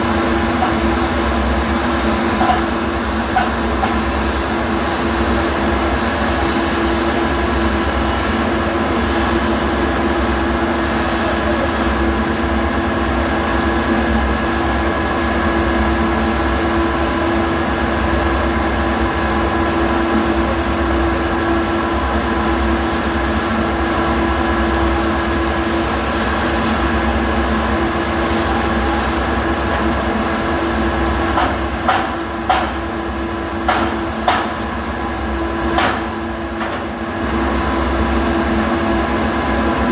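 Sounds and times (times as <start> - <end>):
sharp metallic knocks: 31.4 - 32.8, 33.7 - 34.6, 35.8 - 36.8.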